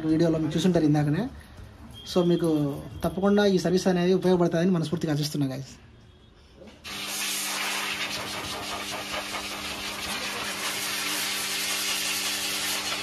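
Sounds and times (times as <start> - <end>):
motor running with airy hiss: 6.9 - 13.0.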